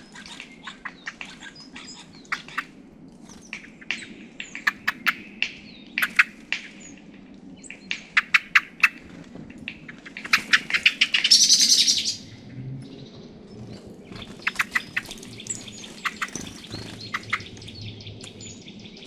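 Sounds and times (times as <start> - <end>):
small birds calling: 3.4 - 7.0, 9.8 - 19.0.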